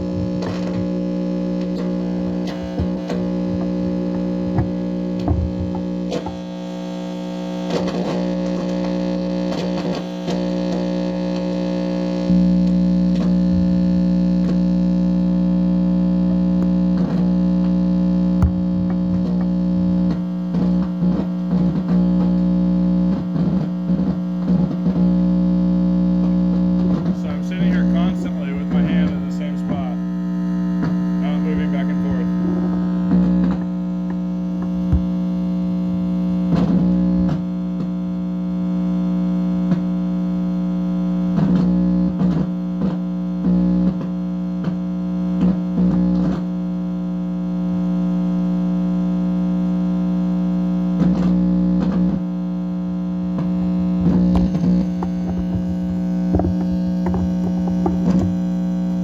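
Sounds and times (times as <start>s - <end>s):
electrical hum and buzz: 0.0s - 59.0s
crackles and warbling blips: 27.0s - 33.8s.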